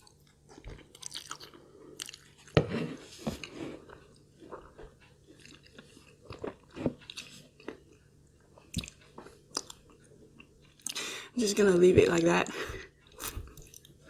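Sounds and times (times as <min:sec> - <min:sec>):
chewing food: 0:00.0 - 0:11.1, 0:13.0 - 0:14.0.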